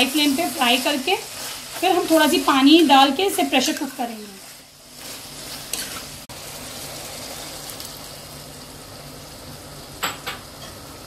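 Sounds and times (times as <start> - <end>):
meat and onions sizzling: 0.0 - 11.0
spoon scraping a pot: 4.4 - 6.1.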